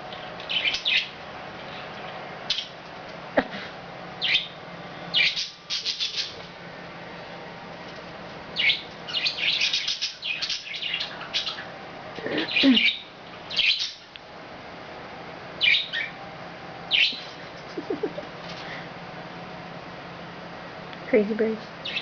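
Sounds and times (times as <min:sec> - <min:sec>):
budgerigars chirping: 0:00.4 - 0:01.8, 0:04.2 - 0:06.4, 0:08.6 - 0:11.7, 0:12.4 - 0:14.1, 0:15.6 - 0:16.2, 0:16.9 - 0:17.3.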